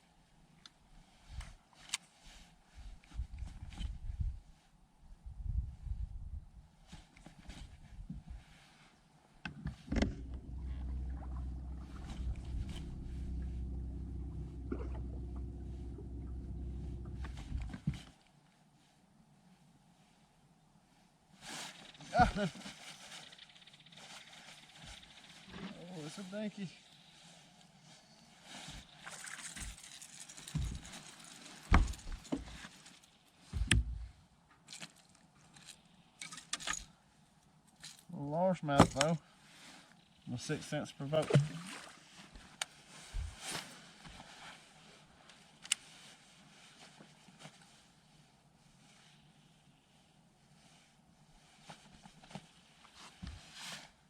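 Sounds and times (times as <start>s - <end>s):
boat motor humming: 9.9s - 17.8s
water splashing: 10.1s - 17.4s, 41.2s - 42.0s.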